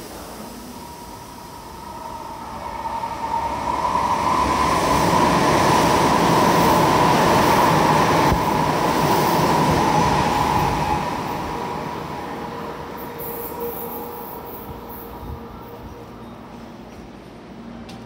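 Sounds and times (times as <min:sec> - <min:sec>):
high ringing whine: 0:00.4 - 0:02.9.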